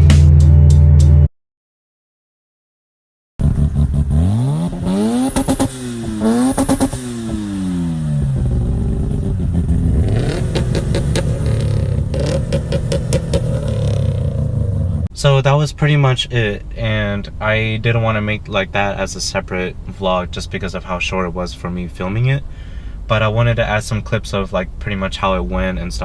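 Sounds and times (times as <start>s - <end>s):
car engine revving: 3.4s - 26.0s.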